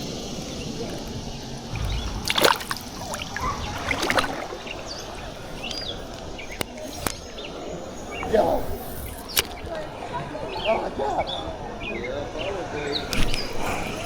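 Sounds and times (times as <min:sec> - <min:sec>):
water splashing around canoe: 0:01.6 - 0:10.0.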